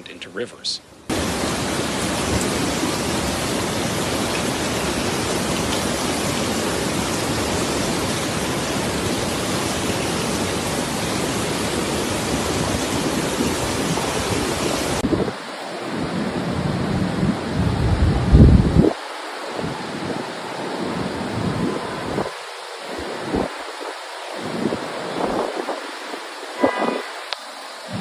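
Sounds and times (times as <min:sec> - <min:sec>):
torrential rain pouring: 0:01.1 - 0:28.0
low rumbling: 0:16.7 - 0:18.9.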